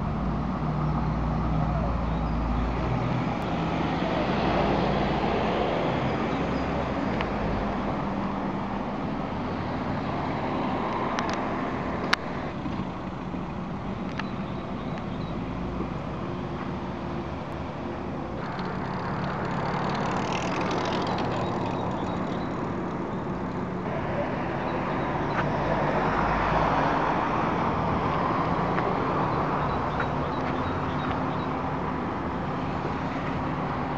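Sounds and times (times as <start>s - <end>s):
outdoor street noise: 0.0s - 33.9s
vehicle engine idling: 11.2s - 26.3s.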